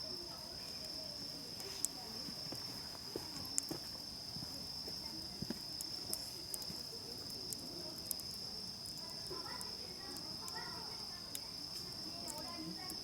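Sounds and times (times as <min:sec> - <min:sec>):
campfire crackling and popping: 0:03.3 - 0:13.0.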